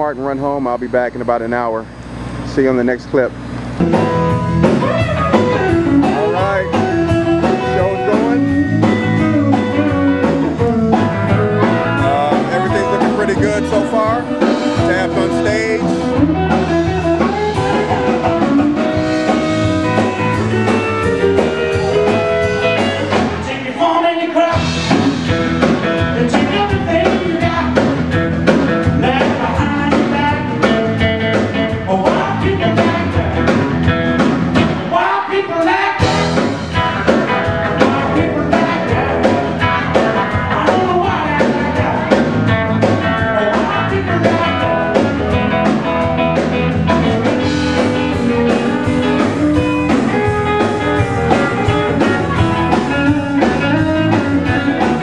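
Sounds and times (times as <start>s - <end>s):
bass guitar: 0.0s - 55.0s
electric guitar: 1.3s - 55.0s
drum kit: 2.5s - 55.0s.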